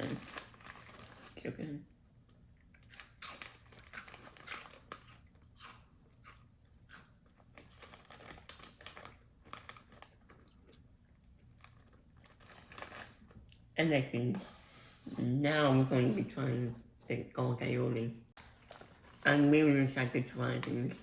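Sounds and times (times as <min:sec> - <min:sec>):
person chewing crunchy snack: 0:02.6 - 0:13.7.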